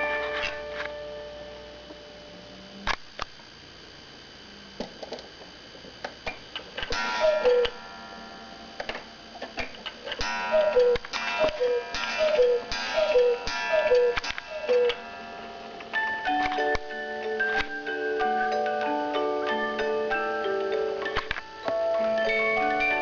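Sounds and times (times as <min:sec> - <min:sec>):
cuckoo clock calls: 0:07.0 - 0:07.8, 0:10.1 - 0:15.2, 0:15.9 - 0:23.0
clock pendulum ticking: 0:10.2 - 0:15.0.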